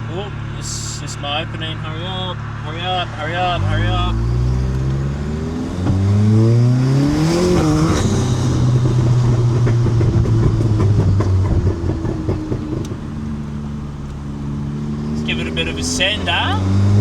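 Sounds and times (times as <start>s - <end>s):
car engine accelerating hard: 0.0s - 17.0s
exhaust crackle: 0.0s - 17.0s
gear shift hiss: 10.9s - 16.6s.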